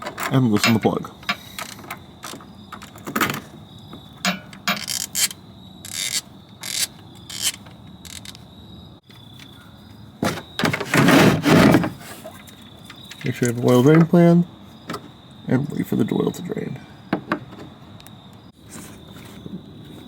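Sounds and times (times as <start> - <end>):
small metal clinks: 4.2 - 8.4
ratchet clicking: 4.3 - 8.4.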